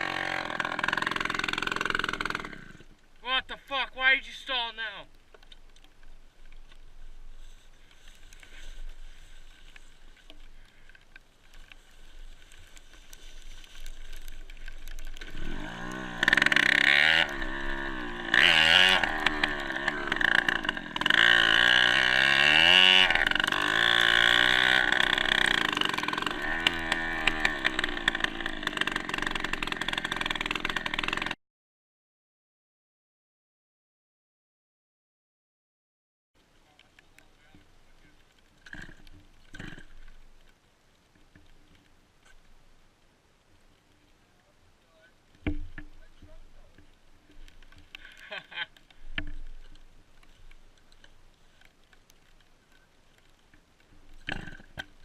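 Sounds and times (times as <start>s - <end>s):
dirt bike engine revving: 0.0s - 2.8s, 15.2s - 31.4s.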